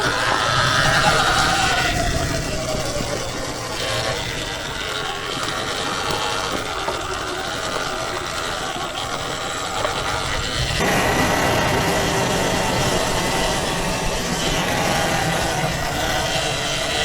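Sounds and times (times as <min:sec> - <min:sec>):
electric motor whine: 0:00.0 - 0:17.0
tyres and brush noise: 0:09.0 - 0:17.0.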